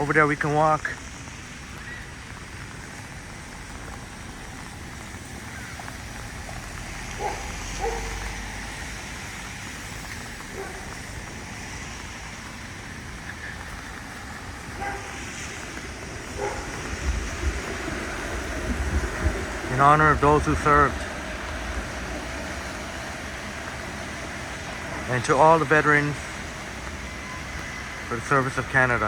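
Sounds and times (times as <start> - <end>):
heavy rain hissing: 0.0 - 29.0
low traffic rumble: 0.0 - 29.0
short distant calls: 12.2 - 17.4, 21.0 - 29.0.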